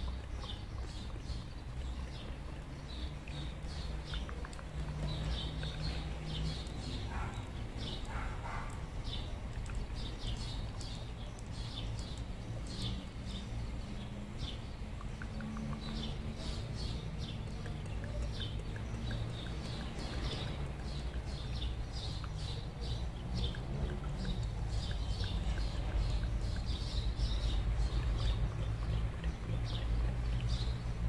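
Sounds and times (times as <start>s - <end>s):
songbirds chirping and twittering: 0.0s - 31.0s.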